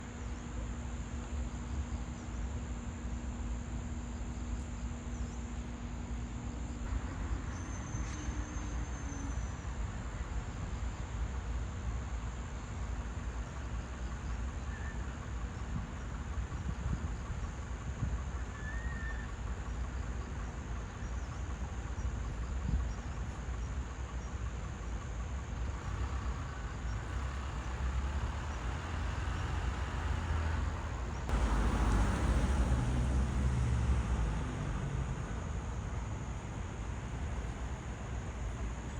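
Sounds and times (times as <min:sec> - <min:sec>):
low traffic rumble: 0:00.0 - 0:38.9
faint bird chirps: 0:14.2 - 0:15.8, 0:18.4 - 0:20.1.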